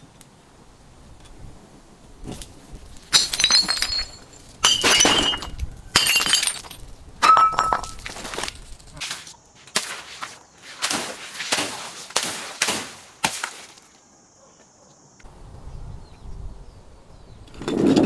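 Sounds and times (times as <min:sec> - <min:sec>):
glass bottles smashing: 0:03.0 - 0:08.8
glass shards tinkling: 0:03.1 - 0:08.8.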